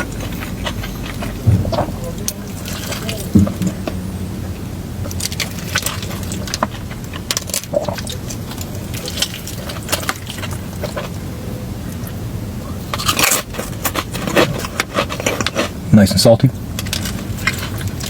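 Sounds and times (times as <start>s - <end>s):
crunchy chewing: 0.0s - 15.9s, 16.7s - 18.0s
low steady hum: 0.0s - 18.0s.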